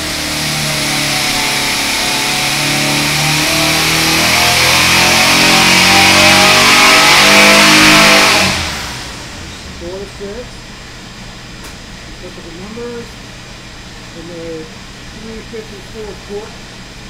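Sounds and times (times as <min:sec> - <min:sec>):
engine at full throttle: 0:00.0 - 0:10.0.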